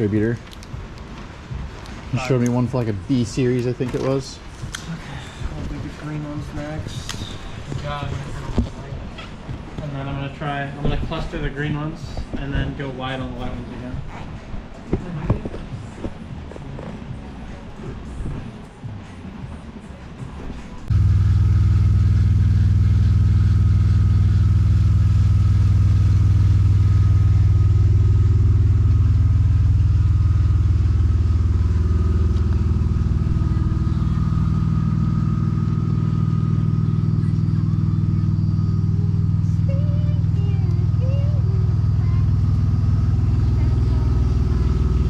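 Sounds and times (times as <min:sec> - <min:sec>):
vehicle engine humming: 0:15.6 - 0:45.0.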